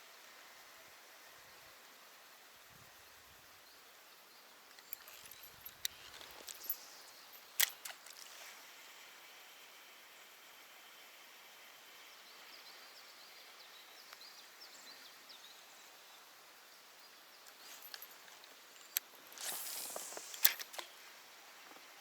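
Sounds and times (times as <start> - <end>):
fishing reel clicks: 18.9 - 20.9.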